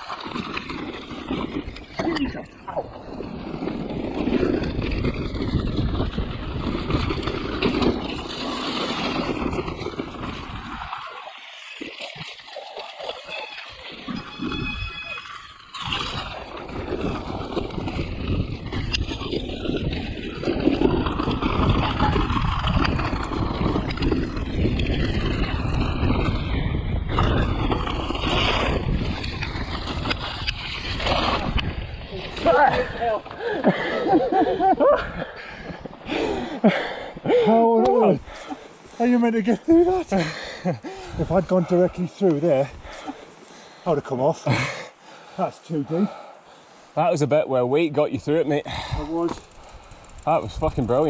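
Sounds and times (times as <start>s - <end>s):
wind on microphone: 0.0s - 11.1s, 13.7s - 38.9s
mountain bike rattle and tyre noise: 0.0s - 51.0s.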